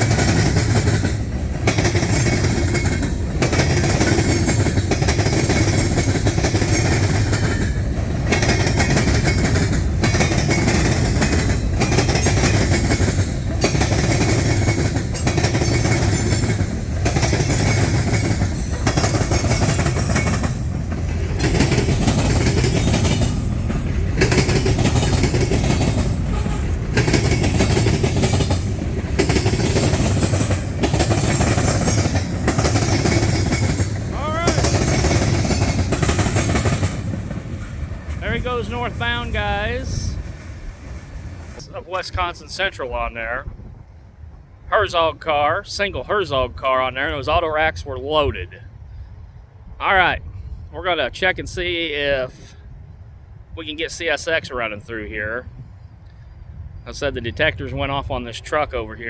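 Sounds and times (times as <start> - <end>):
freight train wheels clattering: 0.0 - 42.2.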